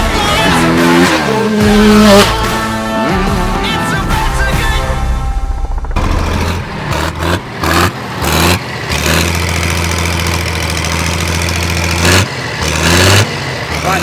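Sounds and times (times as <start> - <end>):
loud bursts of noise: 0.0 - 10.4
engine idling: 0.0 - 14.0.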